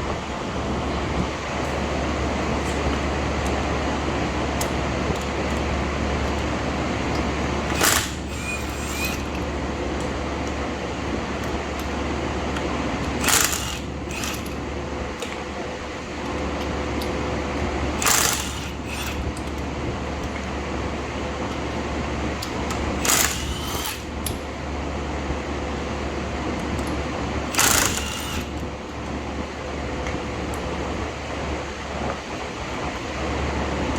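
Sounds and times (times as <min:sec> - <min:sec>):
fan-like hum: 0:00.0 - 0:33.9
impact wrench bursts: 0:07.7 - 0:09.4, 0:13.2 - 0:14.6, 0:18.0 - 0:19.3, 0:23.0 - 0:24.1, 0:27.5 - 0:28.6.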